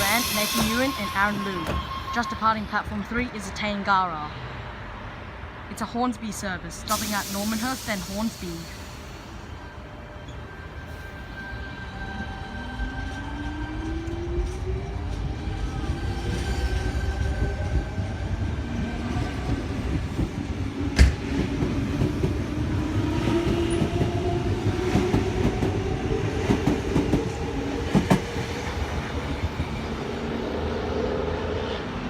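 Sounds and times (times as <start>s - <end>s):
wheels rumbling on rail: 7.3s - 32.0s.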